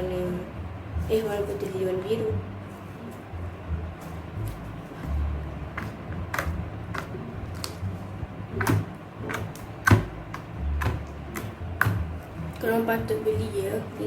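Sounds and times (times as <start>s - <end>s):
low handling rumble: 0.0s - 14.0s
slime clicking and popping: 5.8s - 7.8s.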